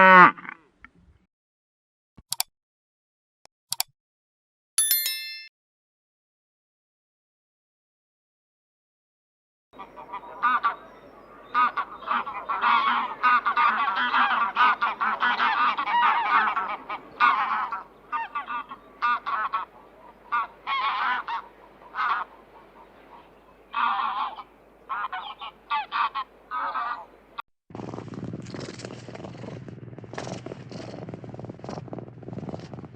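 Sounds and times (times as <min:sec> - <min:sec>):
waterfowl flock calling: 0:09.8 - 0:27.2.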